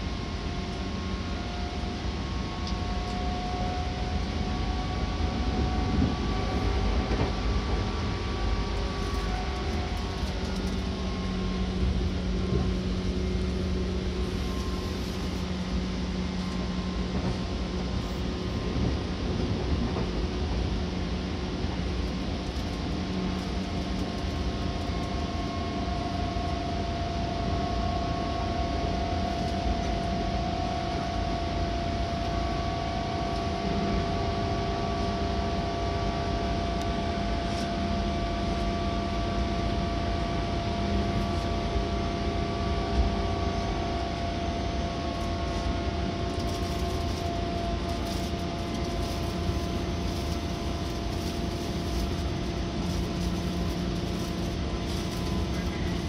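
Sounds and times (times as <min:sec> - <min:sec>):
high train whine: 0:00.0 - 0:56.0
train wheels rumbling on rail: 0:00.0 - 0:56.0.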